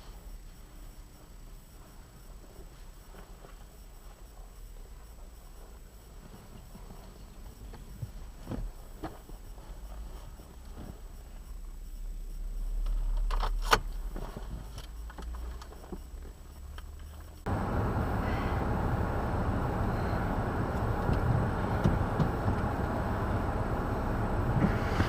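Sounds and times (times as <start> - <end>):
low rumble: 16.3 - 25.0.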